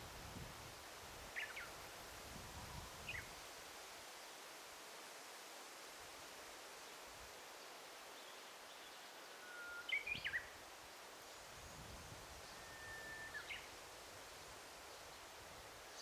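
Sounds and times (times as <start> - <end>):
faint forest hiss: 0.0 - 16.0
songbird whistling: 9.3 - 10.5, 12.5 - 13.7.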